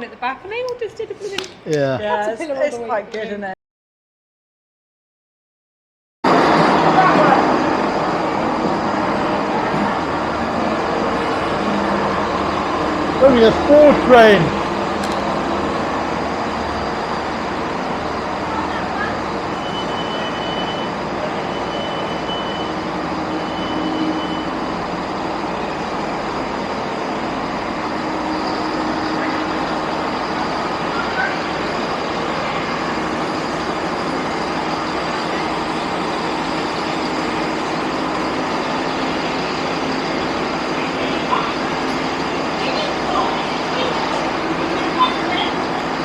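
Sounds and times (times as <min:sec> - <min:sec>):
train noise: 0:06.2 - 0:46.0.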